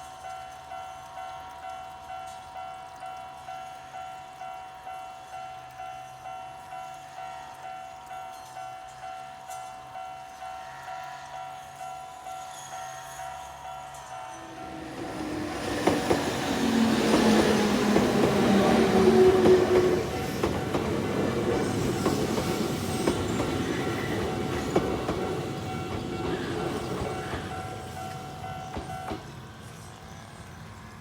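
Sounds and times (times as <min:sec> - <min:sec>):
electric train passing: 0:00.0 - 0:31.0
crossing warning bell ringing: 0:00.2 - 0:30.2
train wheels clacking over rail joints: 0:13.8 - 0:30.0.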